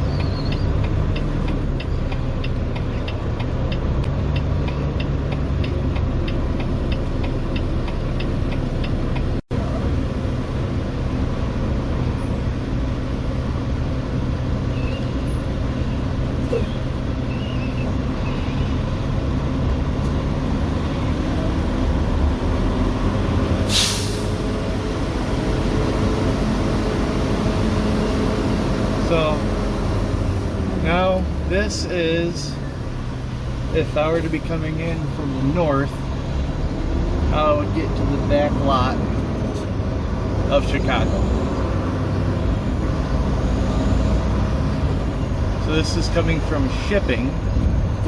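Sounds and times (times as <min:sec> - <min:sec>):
diesel truck engine running: 0:00.0 - 0:48.0
air brake hiss: 0:23.6 - 0:24.6.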